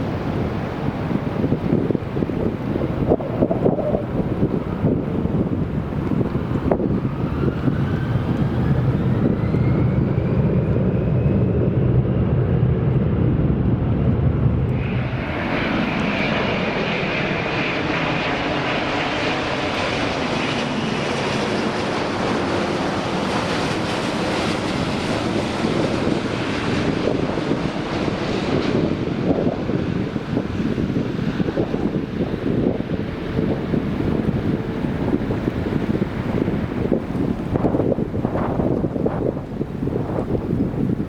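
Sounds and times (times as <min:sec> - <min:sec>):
jet engines rumbling with whine: 0:00.0 - 0:41.0
steady jet noise: 0:00.0 - 0:41.0.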